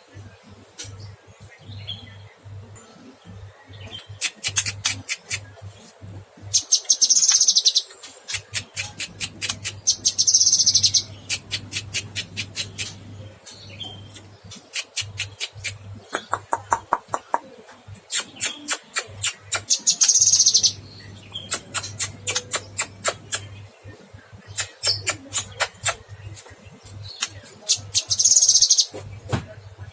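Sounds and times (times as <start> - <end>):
bird singing trills: 6.4 - 17.3, 18.1 - 29.0.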